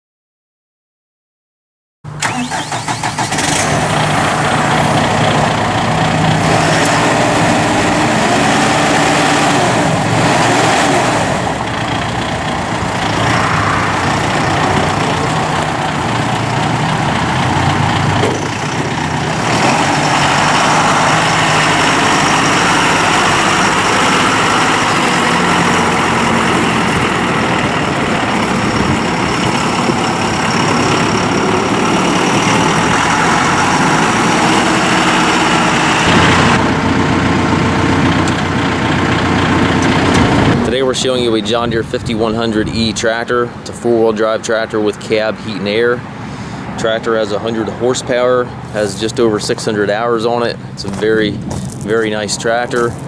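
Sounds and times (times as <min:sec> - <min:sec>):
tractor diesel engine idling: 0:02.1 - 0:53.0.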